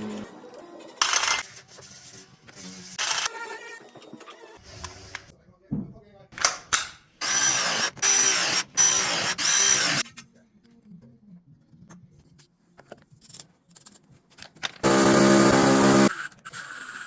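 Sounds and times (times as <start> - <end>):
power drill spinning: 7.2 - 10.0, 14.8 - 17.0.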